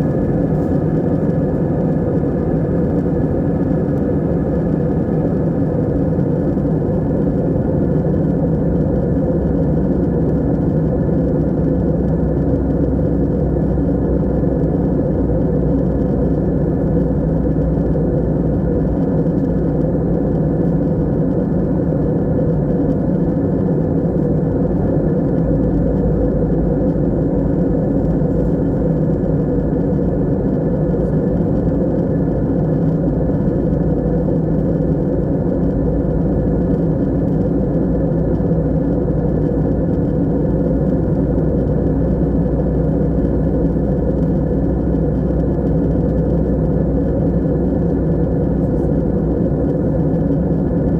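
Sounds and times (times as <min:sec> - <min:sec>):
airplane cabin engine drone: 0:00.0 - 0:50.9.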